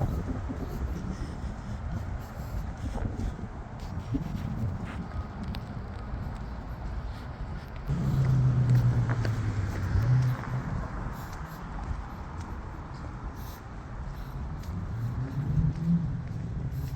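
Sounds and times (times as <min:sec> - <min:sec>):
road traffic rumble: 0:00.0 - 0:16.9
vehicle engine drone: 0:07.7 - 0:16.9.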